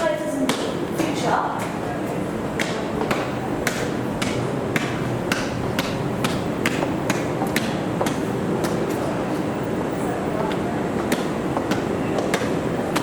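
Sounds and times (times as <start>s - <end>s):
footsteps climbing stairs: 0.0s - 9.7s, 10.3s - 13.0s
hum of busy railway station: 0.0s - 13.0s.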